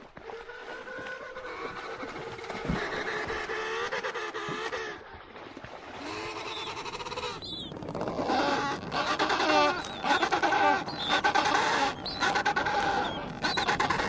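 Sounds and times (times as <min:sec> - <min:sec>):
penguins braying: 0:08.2 - 0:14.0.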